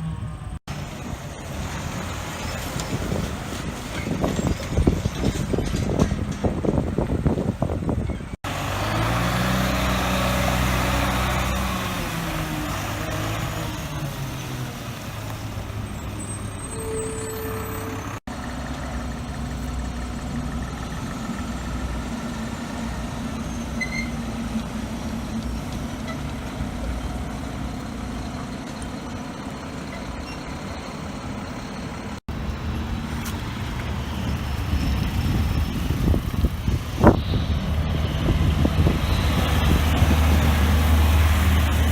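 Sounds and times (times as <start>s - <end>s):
heavy truck engines running: 0.0s - 41.9s
short beep: 16.3s - 18.2s.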